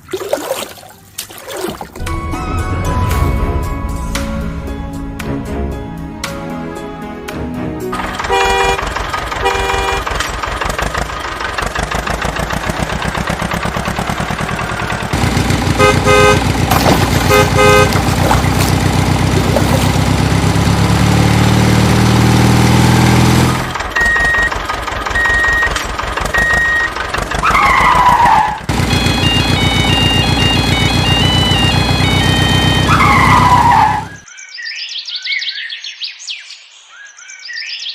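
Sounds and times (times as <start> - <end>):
short horn honks: 8.0 - 10.2, 15.7 - 18.8
cartoon engine running: 8.0 - 34.2
short electronic beeps: 24.0 - 27.0.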